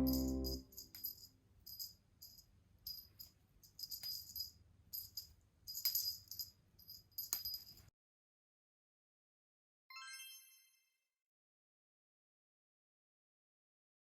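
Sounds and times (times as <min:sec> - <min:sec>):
small bell jingling: 0:00.0 - 0:07.9.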